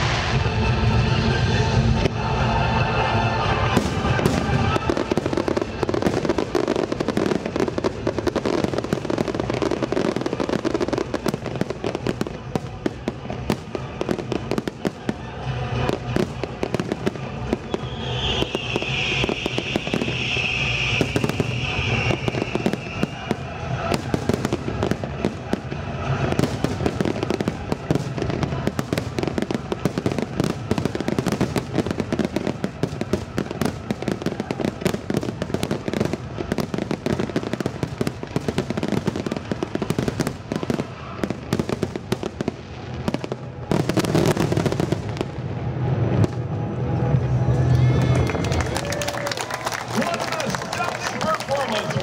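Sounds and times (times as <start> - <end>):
fireworks bursting and crackling: 0.0 - 52.0.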